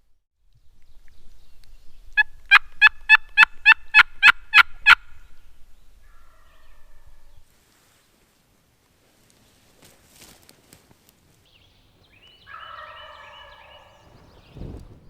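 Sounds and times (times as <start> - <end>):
turkey calling: 11.6 - 14.6.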